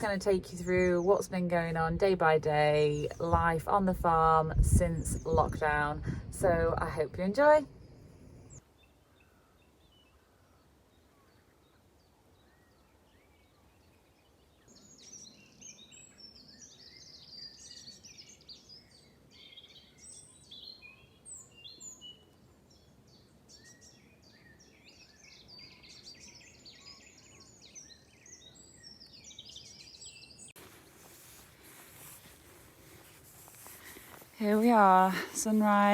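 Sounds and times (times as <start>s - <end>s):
wild birds singing: 0.0s - 4.0s, 7.7s - 35.9s
steady hiss: 30.6s - 35.7s.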